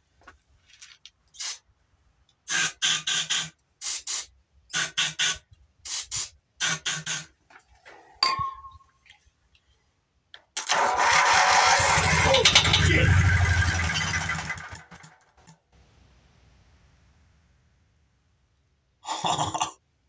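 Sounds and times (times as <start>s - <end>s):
aerosol spray hissing: 2.5s - 4.3s, 4.9s - 7.3s
metallic clink: 8.2s - 8.9s.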